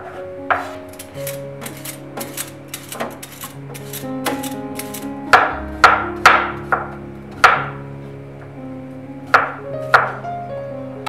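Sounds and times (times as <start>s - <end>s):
soft background music: 0.0s - 11.0s
knife chopping on wooden board: 9.3s - 10.2s.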